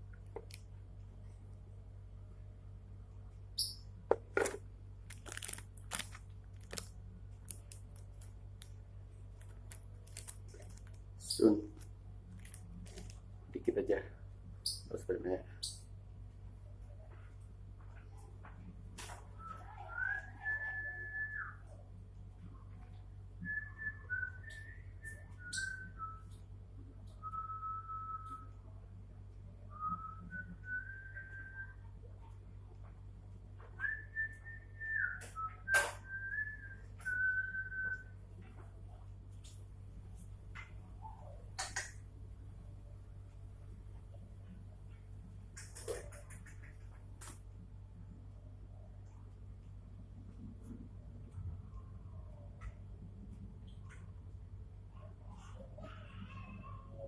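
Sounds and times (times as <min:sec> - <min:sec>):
low electrical hum: 0:00.0 - 0:57.0
soft clicks and crackles: 0:04.4 - 0:13.4
whistling tune: 0:19.4 - 0:21.8, 0:23.4 - 0:26.4, 0:33.8 - 0:38.1.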